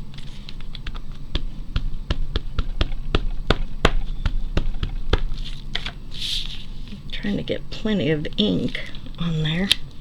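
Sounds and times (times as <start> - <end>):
rubber stamp tapping ink pad: 0.7 - 5.4.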